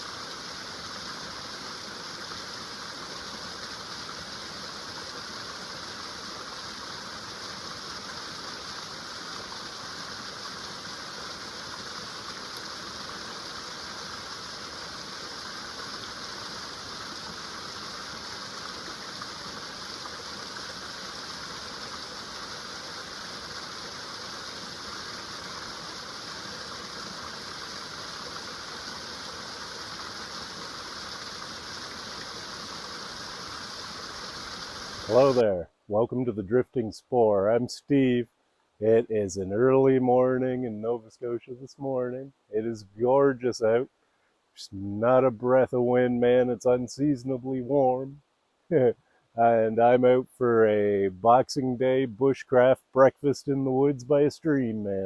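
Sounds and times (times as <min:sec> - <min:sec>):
stream running over small waterfalls: 0:00.0 - 0:35.9.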